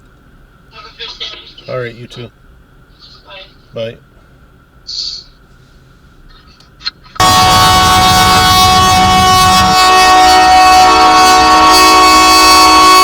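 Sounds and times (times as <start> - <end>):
train air horn chord: 7.2 - 13.0.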